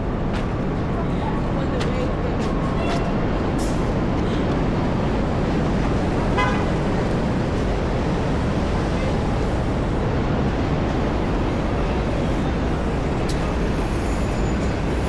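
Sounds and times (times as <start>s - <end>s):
street traffic noise: 0.0s - 15.0s
car horn toot: 6.4s - 6.8s.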